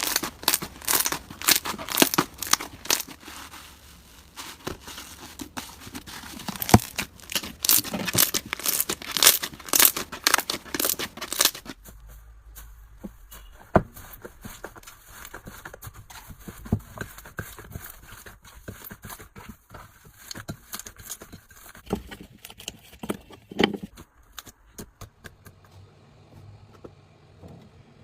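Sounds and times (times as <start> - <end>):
slime crackling and popping: 0.0 - 11.8.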